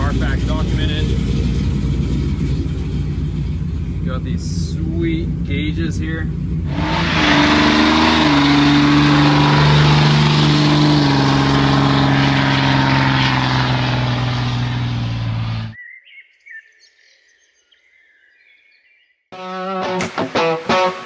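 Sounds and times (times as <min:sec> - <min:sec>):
pickup truck engine running: 0:00.0 - 0:15.8.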